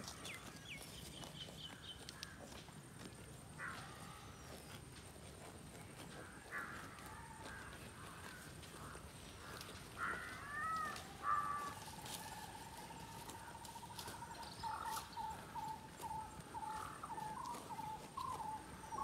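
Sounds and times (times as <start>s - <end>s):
harsh bird calls: 10.0s - 19.0s.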